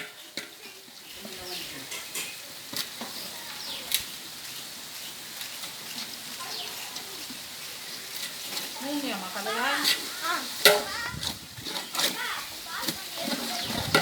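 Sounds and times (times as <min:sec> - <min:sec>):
curry sizzling in a pot: 0:00.0 - 0:14.0.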